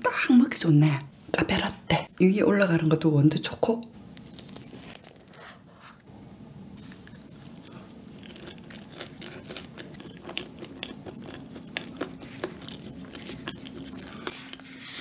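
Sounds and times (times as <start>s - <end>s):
low steady hum: 0.0s - 15.0s
chewing with sharp crunches: 6.8s - 15.0s.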